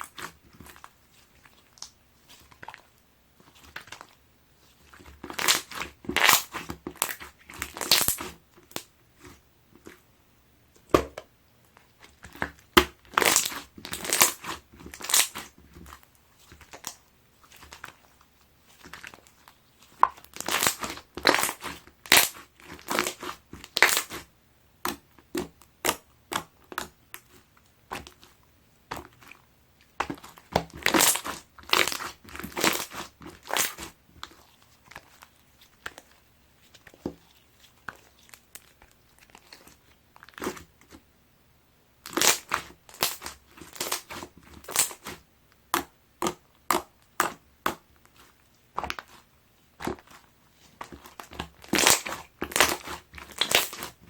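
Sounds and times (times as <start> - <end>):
slime squishing and popping: 4.9 - 9.4, 12.0 - 18.0, 19.9 - 28.3, 29.9 - 36.2, 36.8 - 41.0, 42.0 - 54.0.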